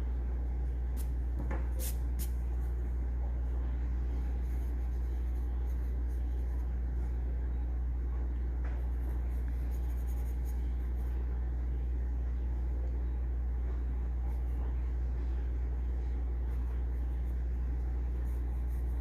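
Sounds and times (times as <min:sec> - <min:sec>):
low steady hum: 0:00.0 - 0:19.0
pencil scratching on paper: 0:04.2 - 0:06.8, 0:08.8 - 0:11.1, 0:16.4 - 0:19.0.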